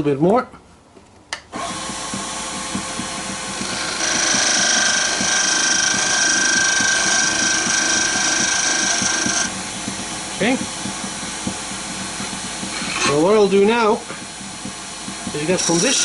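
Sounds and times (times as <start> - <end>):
wood lathe running: 1.6 - 9.6, 15.3 - 16.0
tool cutting spinning wood: 1.6 - 11.4, 15.1 - 16.0.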